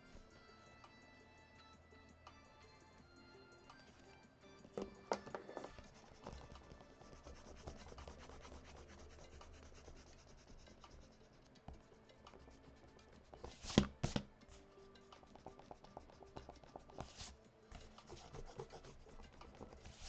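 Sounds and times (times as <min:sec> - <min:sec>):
eraser rubbing on paper: 0:05.8 - 0:11.4, 0:12.4 - 0:14.2, 0:15.4 - 0:20.0.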